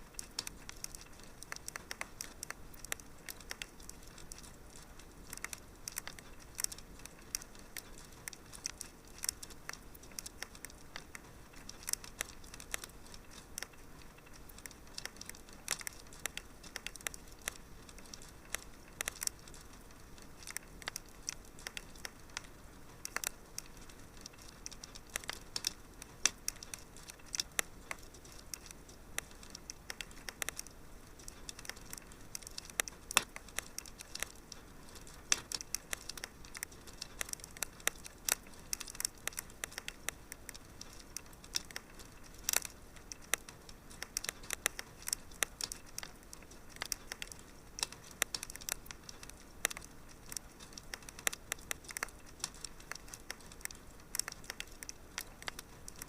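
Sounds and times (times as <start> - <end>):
faint steady hiss: 0.0 - 56.0
wood fire crackling: 0.0 - 56.0.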